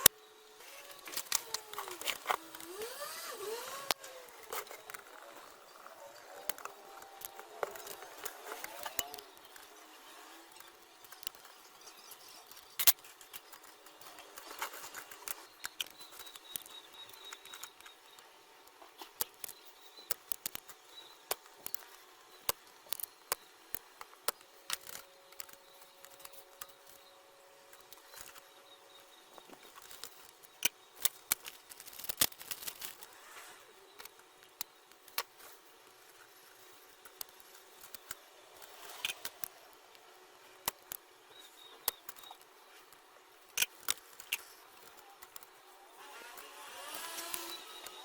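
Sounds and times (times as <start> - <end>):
small clicks and taps: 12.4 - 27.0.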